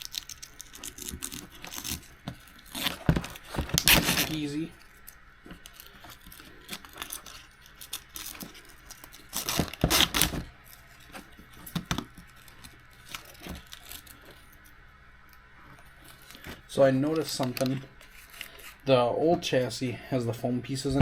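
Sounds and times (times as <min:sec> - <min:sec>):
small parts clicking and rattling: 0:00.0 - 0:14.7.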